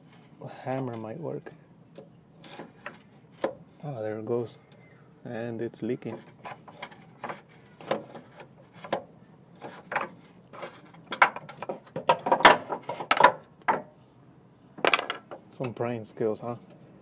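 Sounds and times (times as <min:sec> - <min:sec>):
metal clanks and scrapes: 0:02.4 - 0:03.6, 0:06.1 - 0:13.8.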